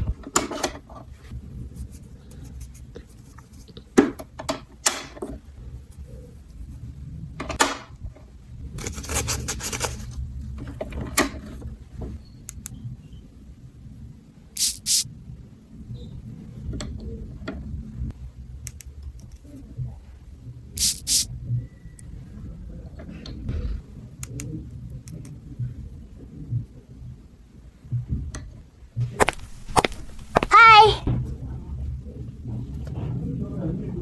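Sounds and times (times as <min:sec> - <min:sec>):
rustling: 0:29.0 - 0:30.8.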